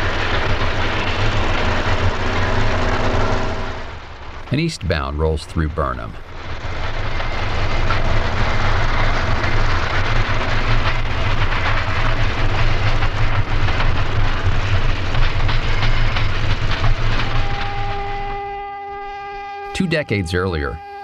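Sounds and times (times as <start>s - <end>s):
electric train rumbling past: 0.0s - 21.0s
wheels clicking over rail joints: 6.6s - 18.4s.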